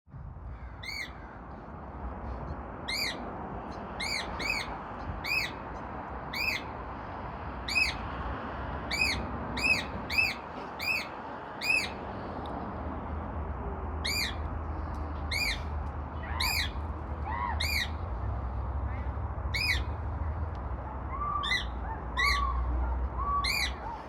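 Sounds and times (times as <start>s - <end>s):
cockatiel calling: 0.8s - 1.2s, 2.9s - 3.2s, 4.0s - 5.6s, 6.3s - 6.7s, 7.7s - 8.0s, 8.9s - 12.0s, 14.0s - 14.4s, 15.3s - 15.7s, 16.3s - 16.8s, 17.6s - 18.0s, 19.5s - 19.9s, 21.1s - 22.6s, 23.2s - 24.0s.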